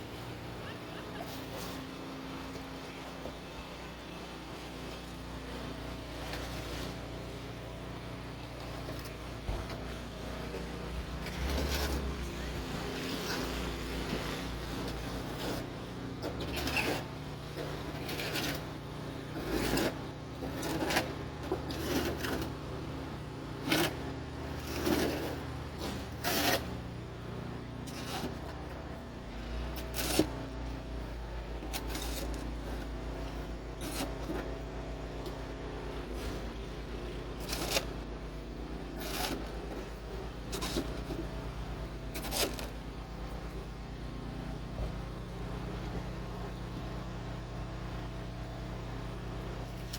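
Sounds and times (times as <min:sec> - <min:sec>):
snow shovel scraping snow: 0:10.5 - 0:22.7, 0:23.6 - 0:27.0, 0:27.9 - 0:35.1, 0:35.8 - 0:43.6.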